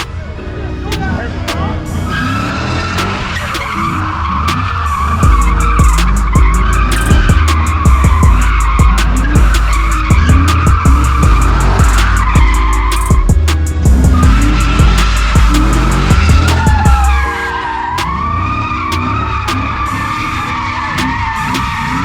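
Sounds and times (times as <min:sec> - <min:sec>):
tyres screeching: 0:00.9 - 0:22.0
heavy low rumble: 0:05.2 - 0:17.3.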